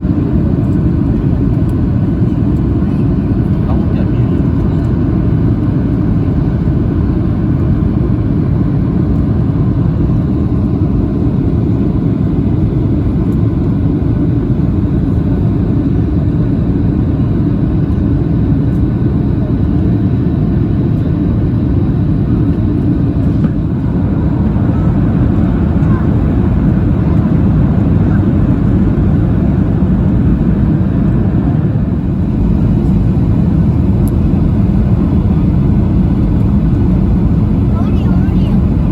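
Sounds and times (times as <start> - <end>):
jet engines droning: 0.0 - 38.9
rushing air in cabin: 22.3 - 38.9.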